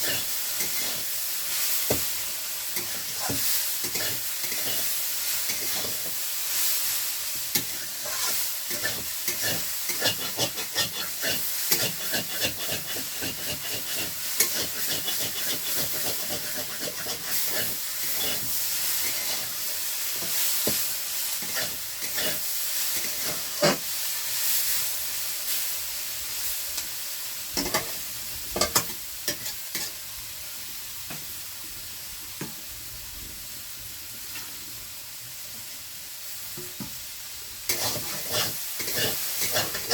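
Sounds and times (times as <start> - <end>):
spatula scraping a pan: 0.0 - 2.1, 2.7 - 6.2, 7.5 - 23.9, 28.6 - 30.0, 37.7 - 39.9
potatoes sizzling in oil: 0.0 - 39.9.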